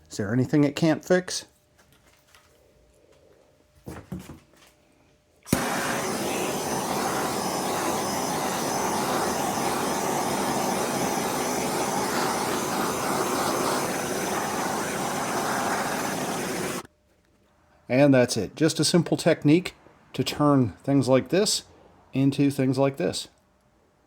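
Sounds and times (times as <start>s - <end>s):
gas torch flame hissing: 5.5s - 16.9s.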